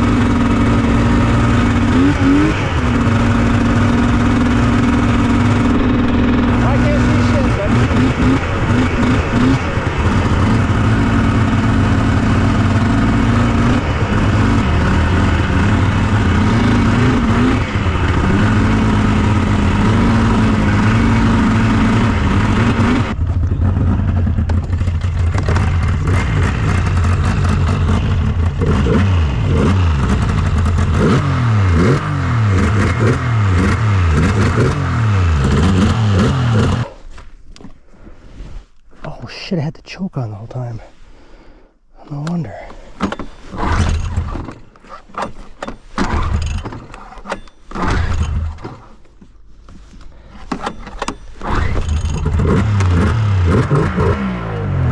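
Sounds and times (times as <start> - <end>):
snowmobile two-stroke engine revving: 0.0 - 37.0, 51.4 - 54.9.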